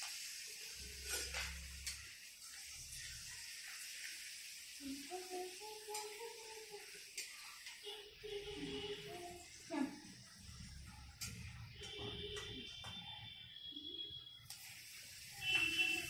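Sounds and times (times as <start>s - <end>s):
crisps sizzling in hot oil: 0.0s - 11.8s, 14.3s - 16.0s
metal spatula clinking and scraping: 1.0s - 2.0s.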